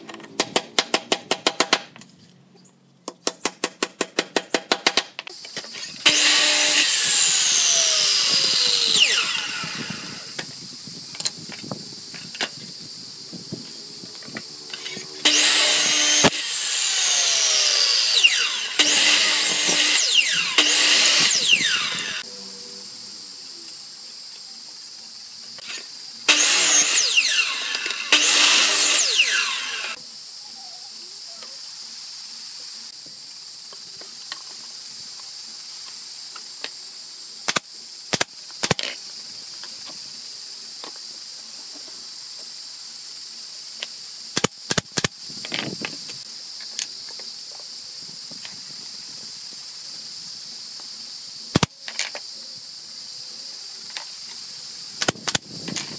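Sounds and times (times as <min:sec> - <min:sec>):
brad nailer shots: 0:00.0 - 0:02.0, 0:03.2 - 0:10.5, 0:14.7 - 0:22.2, 0:25.6 - 0:30.0, 0:51.5 - 0:51.7, 0:54.9 - 0:55.9
high buzz of insects: 0:05.3 - 0:55.9
miter saw whining: 0:05.5 - 0:10.5, 0:13.3 - 0:23.2, 0:25.6 - 0:30.0.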